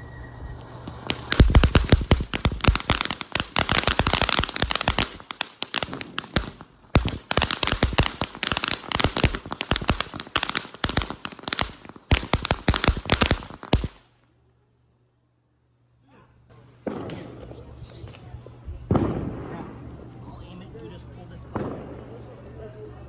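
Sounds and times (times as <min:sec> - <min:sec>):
firecrackers cracking: 0:00.5 - 0:14.1.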